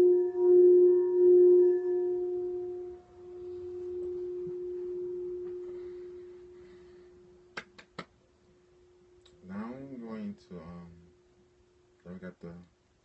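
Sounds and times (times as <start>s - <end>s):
singing bowl ringing: 0.0s - 7.4s.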